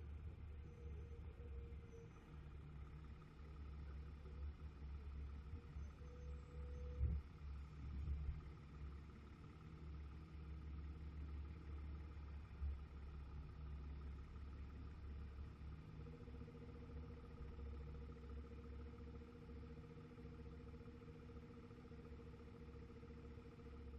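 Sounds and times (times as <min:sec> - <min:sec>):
vehicle engine rumble: 0:00.0 - 0:23.9.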